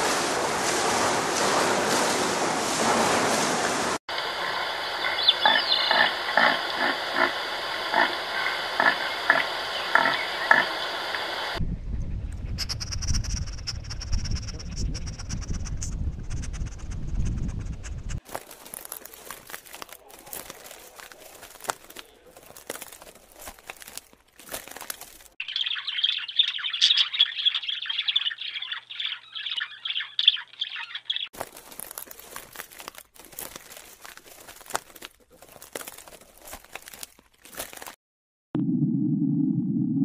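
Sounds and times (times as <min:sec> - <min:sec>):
bird chirping rapidly: 0:05.0 - 0:06.1, 0:12.6 - 0:18.1, 0:25.4 - 0:31.3
crackly rustling: 0:17.8 - 0:25.4, 0:31.3 - 0:38.0.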